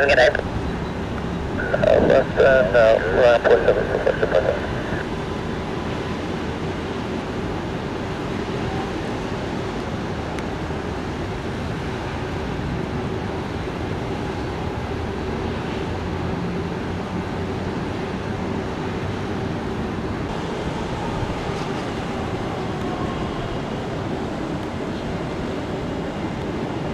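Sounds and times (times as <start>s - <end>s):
faint steady hum: 0.0s - 5.1s
jet engine rushing: 0.0s - 6.2s, 20.3s - 26.9s.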